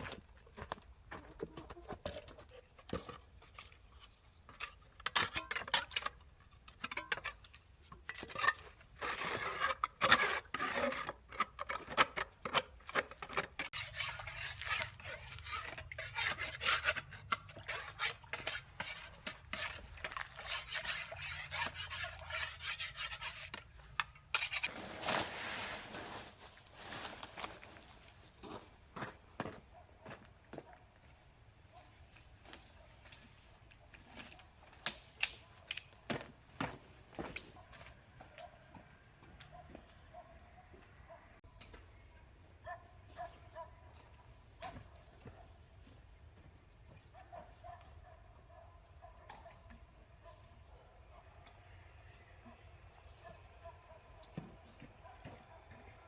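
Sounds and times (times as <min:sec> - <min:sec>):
hard objects clattering and scraping: 0:00.0 - 0:28.0.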